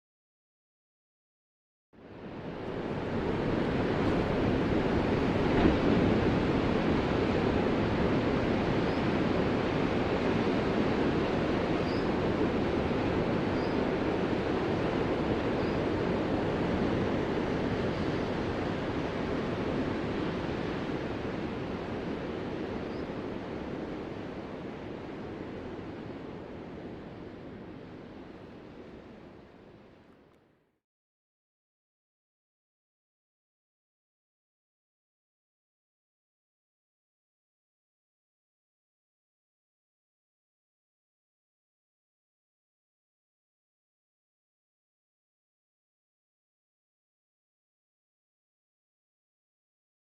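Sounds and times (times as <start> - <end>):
ocean waves washing: 2.1 - 29.9.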